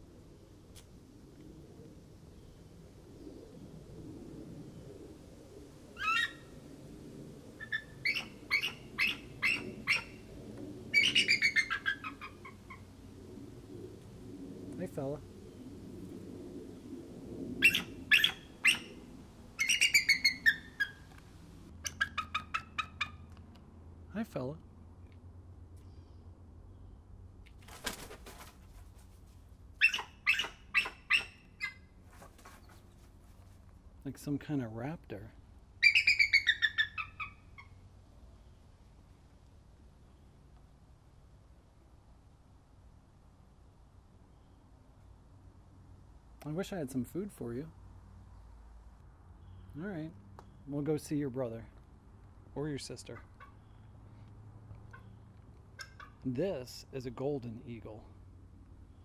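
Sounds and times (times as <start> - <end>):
eagle calling: 6.0 - 6.5, 7.6 - 10.3, 10.9 - 12.9, 17.6 - 21.2, 21.8 - 23.2, 29.8 - 31.8, 35.8 - 37.8
brief rustle: 32.1 - 33.7.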